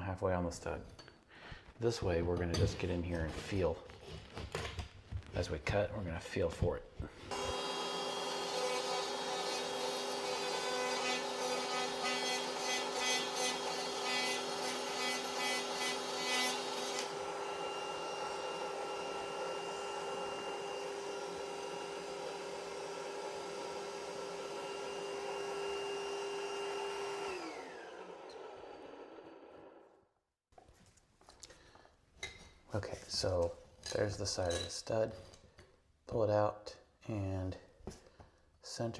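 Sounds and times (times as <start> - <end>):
power tool motor whine: 7.3 - 10.3, 17.0 - 29.8
power tool blade rasping: 7.3 - 17.7.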